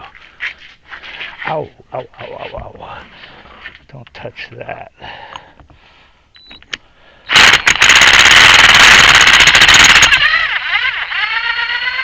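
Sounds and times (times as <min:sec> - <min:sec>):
impact wrench hammering: 0:07.3 - 0:10.3.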